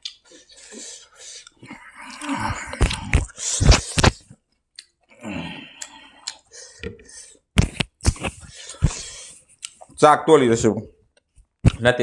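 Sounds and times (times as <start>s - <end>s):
wet mouth clicks: 0.0s - 0.3s, 1.3s - 4.2s, 5.8s - 6.9s, 7.6s - 9.9s
chewing: 1.4s - 3.8s, 4.8s - 7.0s, 8.2s - 10.0s.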